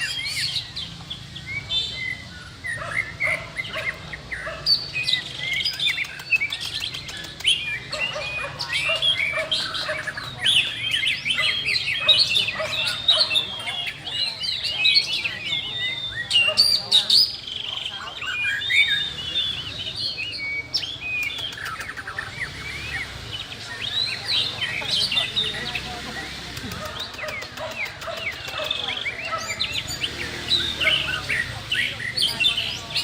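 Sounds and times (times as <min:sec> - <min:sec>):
birds singing whistled phrases: 0:00.0 - 0:33.0.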